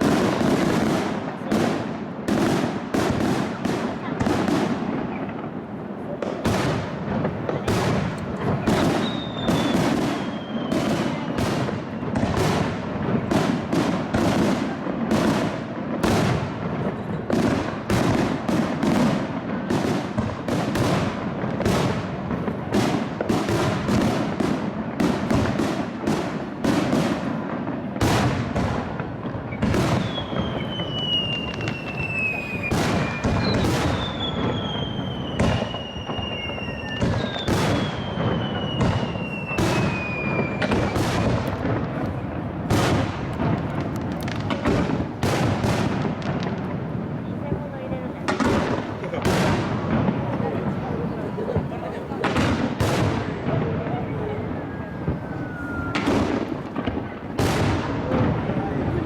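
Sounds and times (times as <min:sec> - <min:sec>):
fireworks bangs and cracks: 0:00.0 - 0:59.0
falling firework whistles: 0:08.6 - 0:12.6, 0:29.4 - 0:41.5, 0:54.0 - 0:57.7.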